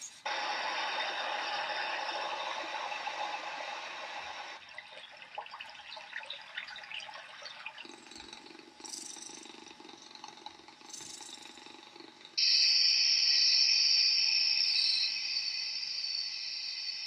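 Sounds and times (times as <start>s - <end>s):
water trickling and dripping: 4.4s - 9.4s.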